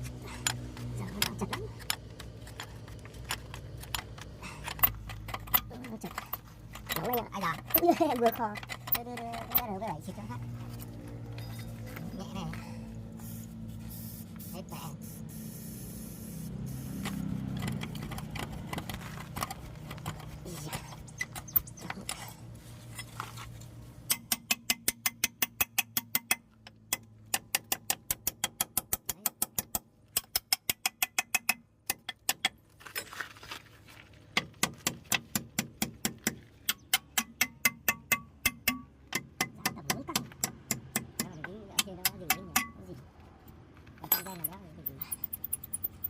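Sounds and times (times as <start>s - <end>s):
low hum: 0.0s - 24.4s.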